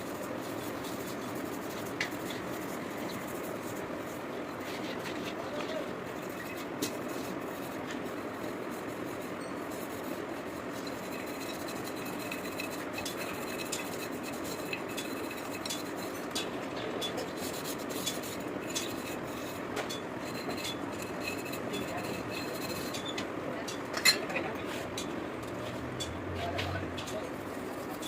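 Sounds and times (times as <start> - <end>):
steady background noise: 0.0 - 28.0
hand tools clicking and scraping metal: 10.6 - 28.0.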